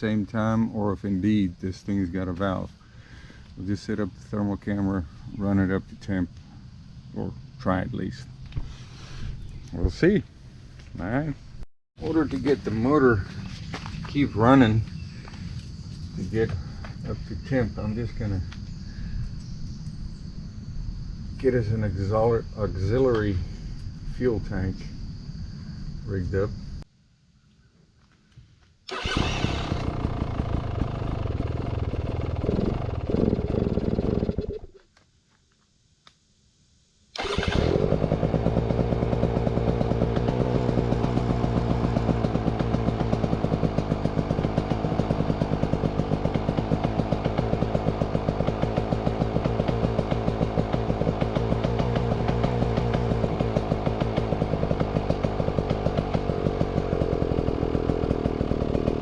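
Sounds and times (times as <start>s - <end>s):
two-stroke engine starting and idling: 28.9s - 34.7s, 37.2s - 59.0s.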